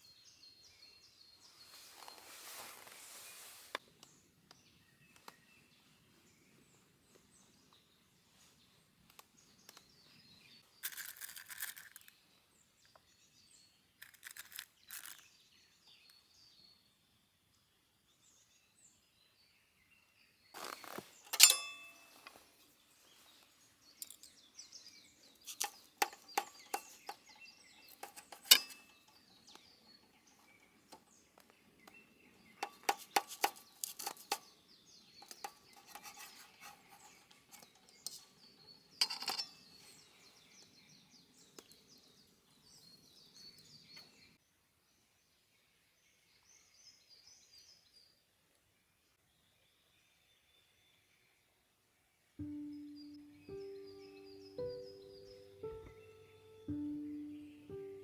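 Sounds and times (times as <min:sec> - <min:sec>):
faint birdsong: 0:00.0 - 0:58.0
sharp clicks and clinks: 0:20.6 - 0:22.4, 0:24.0 - 0:24.4, 0:25.4 - 0:29.6, 0:32.6 - 0:34.5, 0:35.2 - 0:38.4, 0:39.0 - 0:39.8.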